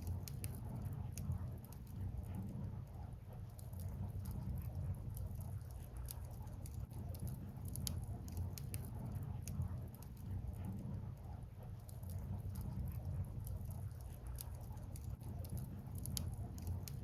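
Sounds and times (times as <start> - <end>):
low steady rumble: 0.0 - 17.0
wood fire crackling and popping: 3.5 - 10.4, 11.2 - 17.0.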